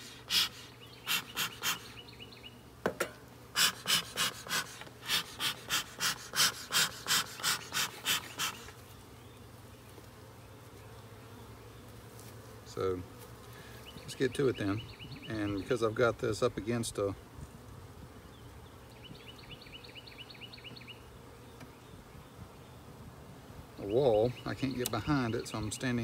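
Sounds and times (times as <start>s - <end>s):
short breathy puffs: 0.0s - 2.0s, 3.6s - 8.8s
honeybees buzzing: 0.0s - 26.0s.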